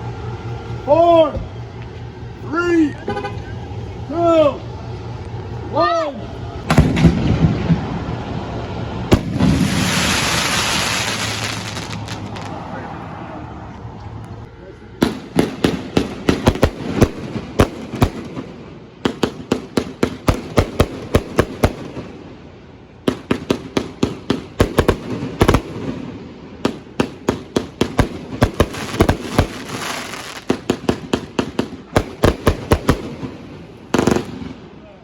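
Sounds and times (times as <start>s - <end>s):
fireworks bangs: 6.6s - 13.0s, 15.0s - 22.4s, 23.1s - 34.8s
fireworks crackling hiss: 6.7s - 12.8s, 23.1s - 34.5s.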